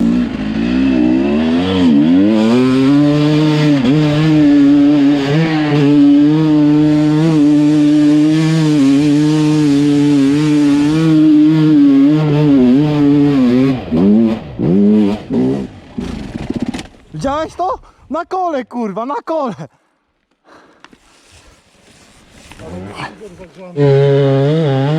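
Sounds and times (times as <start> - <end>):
dirt bike engine revving: 0.0 - 16.9, 23.8 - 24.9.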